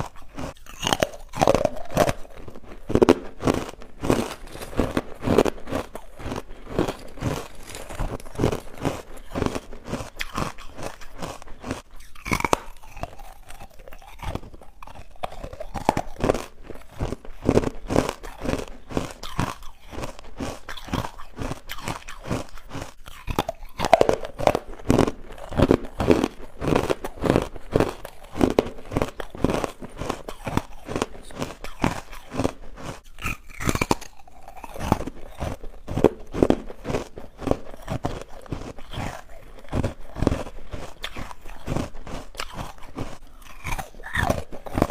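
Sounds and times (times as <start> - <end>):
crunchy chewing: 0.0 - 44.9.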